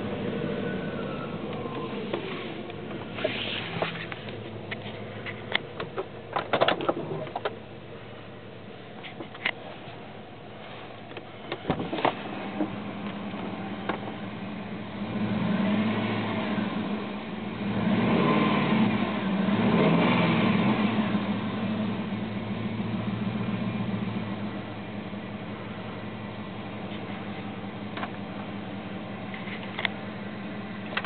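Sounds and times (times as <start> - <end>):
car engine idling and revving: 0.0 - 31.0.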